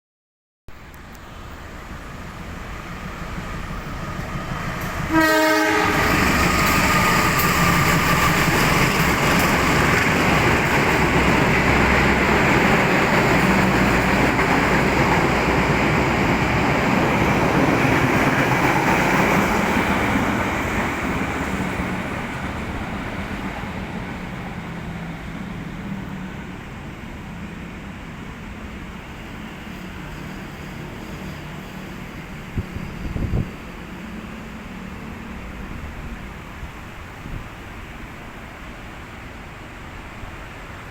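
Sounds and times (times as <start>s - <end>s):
train passing at speed: 0.7s - 40.9s
train wheels rumbling on rails: 0.9s - 40.9s
train horn blast: 5.1s - 6.3s.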